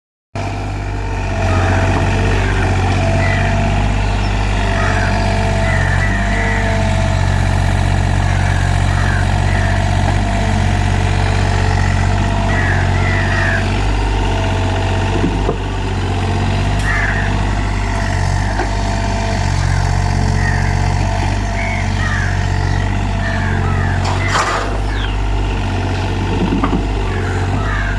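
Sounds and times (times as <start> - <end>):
excavator diesel engine running: 0.4 - 27.9.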